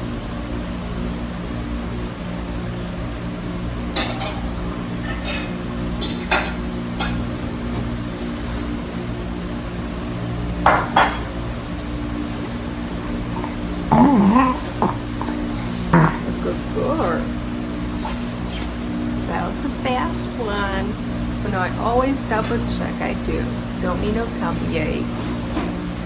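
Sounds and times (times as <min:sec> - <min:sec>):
steady low hum: 0:11.0 - 0:26.0.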